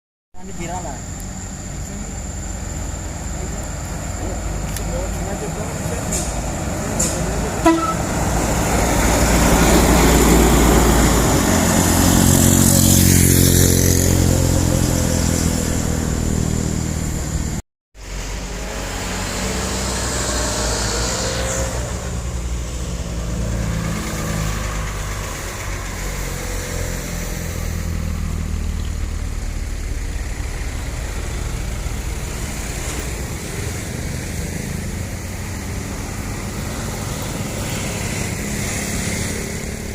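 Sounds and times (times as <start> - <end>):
heavy truck passing: 0.4 - 39.9
truck engine running: 22.1 - 39.9.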